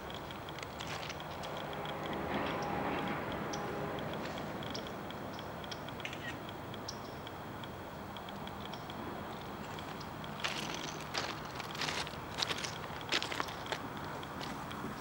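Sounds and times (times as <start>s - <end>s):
crackling rustles: 0.0s - 4.5s, 9.2s - 15.0s
distant freight train rumble: 0.0s - 15.0s.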